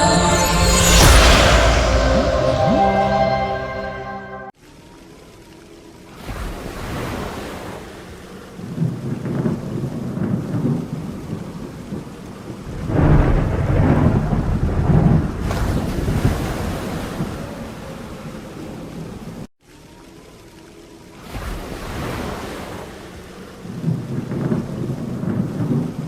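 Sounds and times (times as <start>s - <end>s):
rain falling: 4.6s - 7.1s, 8.0s - 26.0s
rolling thunder: 12.6s - 17.5s.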